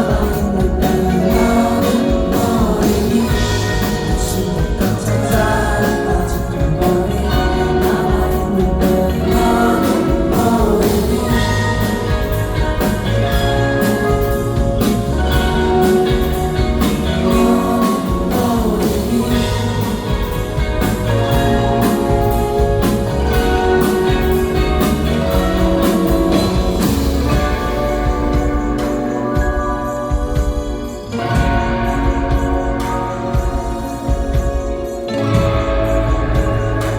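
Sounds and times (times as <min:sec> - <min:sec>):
bass guitar: 0:00.0 - 0:36.9
drum kit beat: 0:00.0 - 0:36.9
electric guitars: 0:00.0 - 0:36.9.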